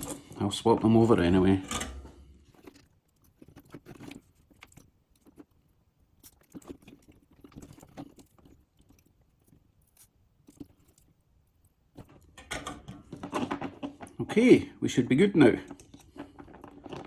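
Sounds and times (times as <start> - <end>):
small parts being handled: 12.0 - 14.3.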